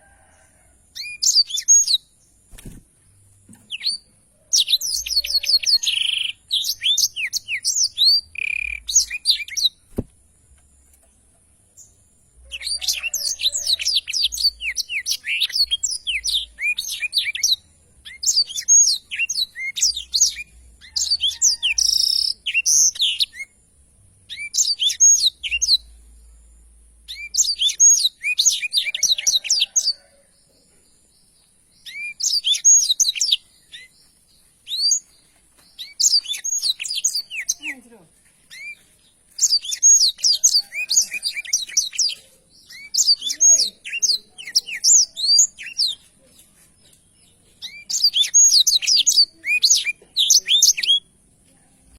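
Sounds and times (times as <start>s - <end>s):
bird twittering song: 0.9s - 51.1s.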